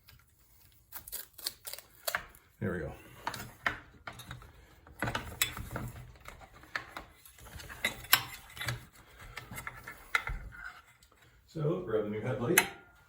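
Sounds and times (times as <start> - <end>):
small parts and tools rattling: 3.1 - 11.2.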